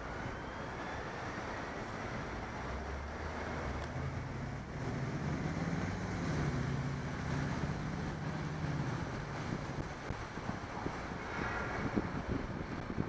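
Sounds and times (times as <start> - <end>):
road traffic engine hum: 0.0 - 13.0
wind rushing over microphone: 3.6 - 13.0.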